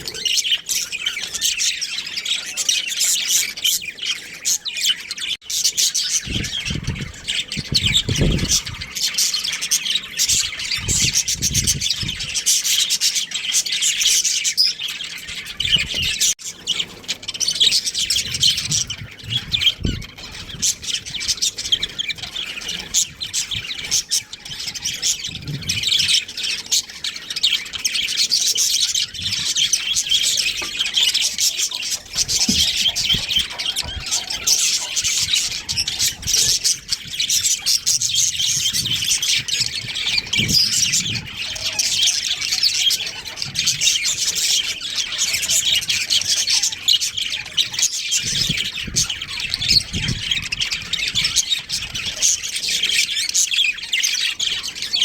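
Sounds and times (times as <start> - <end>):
budgerigars chattering: 0.0 - 55.0.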